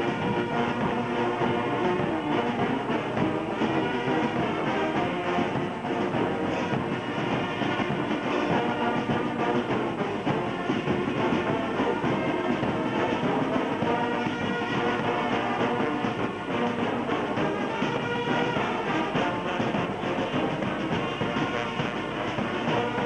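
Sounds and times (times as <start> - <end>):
brass band music: 0.0 - 23.0.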